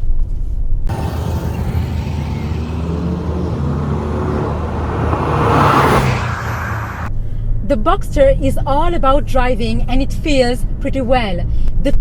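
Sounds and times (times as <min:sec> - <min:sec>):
car engine running: 0:00.9 - 0:07.1
road noise: 0:00.9 - 0:07.1.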